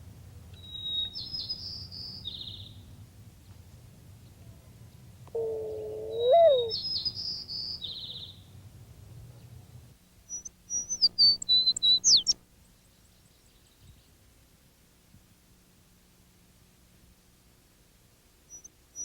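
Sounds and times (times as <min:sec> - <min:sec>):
birds calling and singing: 0:00.6 - 0:02.9, 0:04.9 - 0:08.5, 0:10.3 - 0:12.4
high whistled bird notes: 0:06.0 - 0:08.0, 0:10.3 - 0:12.4.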